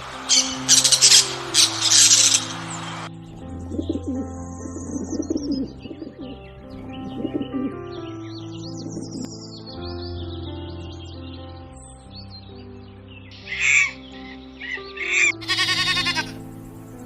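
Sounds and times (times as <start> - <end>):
background music: 0.0 - 17.0
bird calls: 0.0 - 17.0.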